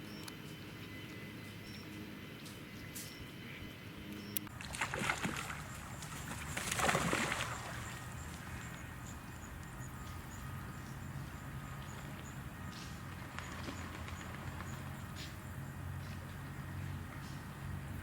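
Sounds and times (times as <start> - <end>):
water splashing: 4.5 - 8.7.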